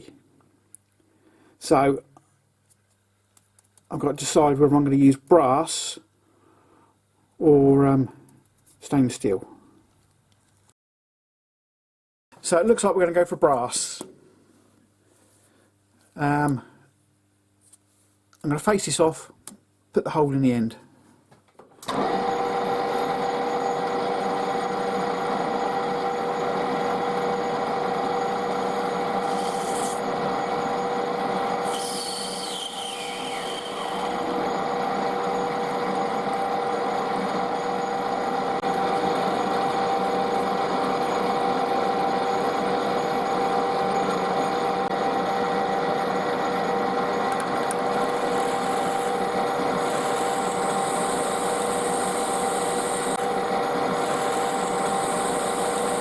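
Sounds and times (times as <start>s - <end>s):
metal lathe whining: 21.9s - 56.0s
tool scraping on metal: 29.2s - 30.0s, 31.6s - 34.2s.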